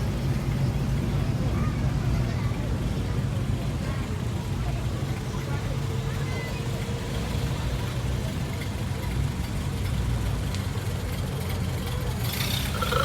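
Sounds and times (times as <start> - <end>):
car engine idling: 10.8 - 13.0.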